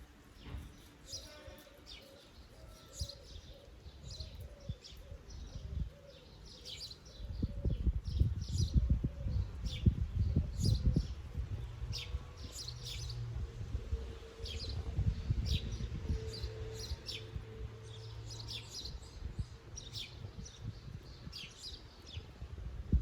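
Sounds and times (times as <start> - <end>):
small birds chirping: 0.0 - 13.3, 14.2 - 22.4.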